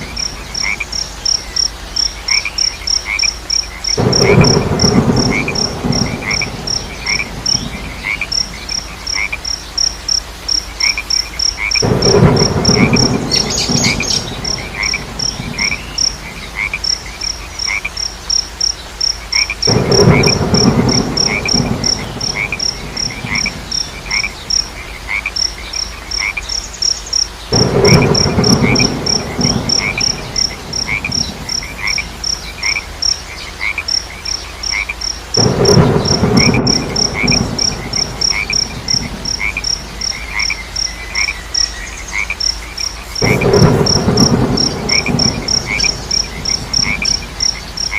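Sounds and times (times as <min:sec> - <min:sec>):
crickets chirping: 0:00.0 - 0:47.9
frogs croaking: 0:00.0 - 0:47.9
slower chirping call: 0:13.0 - 0:16.2.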